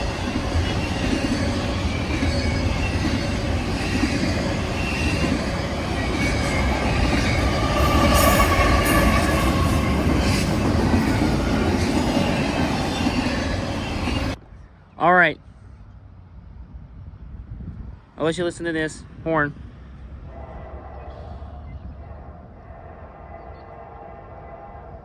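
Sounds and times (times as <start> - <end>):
freight train rumbling past: 0.0 - 14.5, 19.0 - 25.0
wheel squeal: 0.6 - 14.4.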